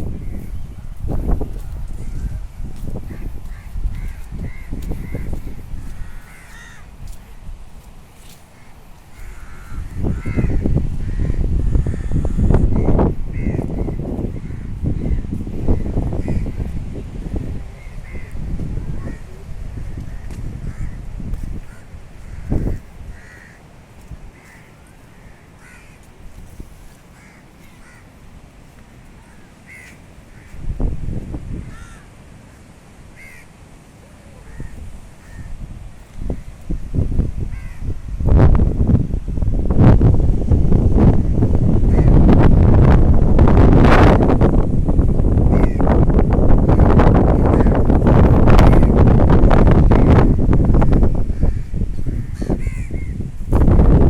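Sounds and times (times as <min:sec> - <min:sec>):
crows cawing: 0:01.2 - 0:07.2, 0:08.2 - 0:16.7, 0:17.8 - 0:23.7, 0:24.3 - 0:28.2, 0:29.2 - 0:30.6, 0:31.6 - 0:32.6, 0:33.2 - 0:33.5, 0:34.4 - 0:35.6, 0:37.5 - 0:37.9, 0:41.3 - 0:42.2, 0:45.5 - 0:46.0, 0:51.3 - 0:53.2.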